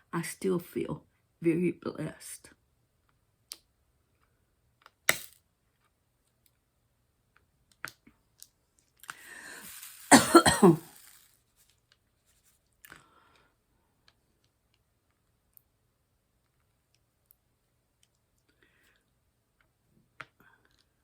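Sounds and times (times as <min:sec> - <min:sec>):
person breathing in: 0:09.1 - 0:10.1
person coughing: 0:10.1 - 0:11.0.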